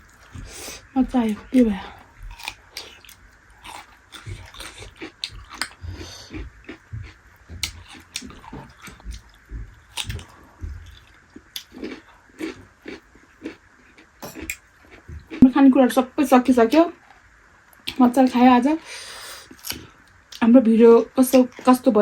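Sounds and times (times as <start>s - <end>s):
chewing and mouth smacks: 2.2s - 15.4s.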